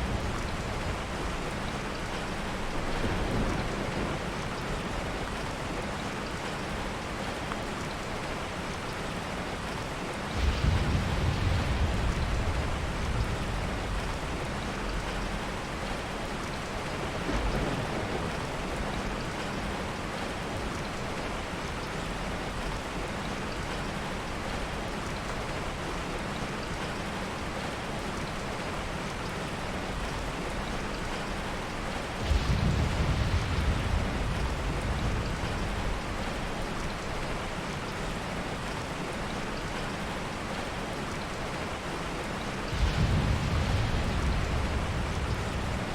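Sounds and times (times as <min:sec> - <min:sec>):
heavy rain hissing: 0:09.6 - 0:20.0, 0:28.8 - 0:39.5, 0:40.3 - 0:45.9
low thunder rumble: 0:10.3 - 0:16.1, 0:17.0 - 0:19.2, 0:32.1 - 0:37.5, 0:42.6 - 0:45.9.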